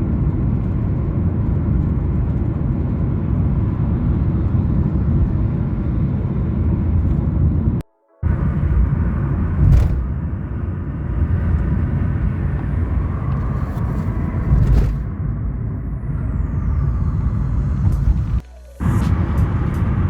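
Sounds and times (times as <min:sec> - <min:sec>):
highway road and engine noise: 0:00.0 - 0:20.0.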